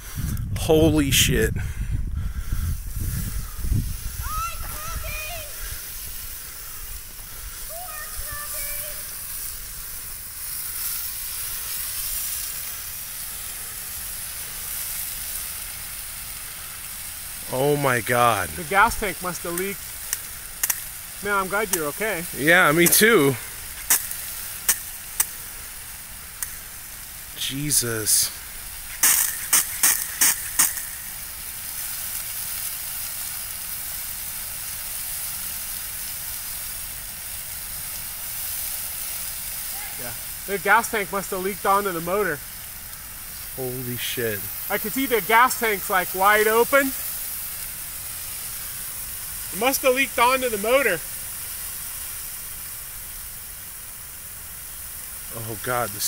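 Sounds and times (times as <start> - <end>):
fire burning with a hiss: 0.0 - 56.0
sharp pops: 18.4 - 32.7.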